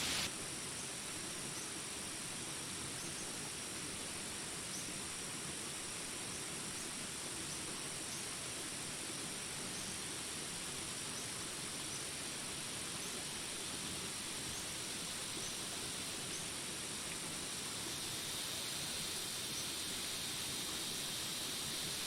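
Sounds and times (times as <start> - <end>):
high insect drone: 0.0 - 1.0, 5.8 - 22.0
rain hiss: 0.0 - 22.0.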